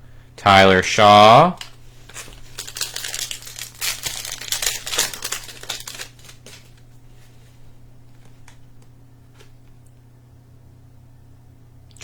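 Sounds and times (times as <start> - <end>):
card pack wrapper crinkling: 1.6 - 7.0.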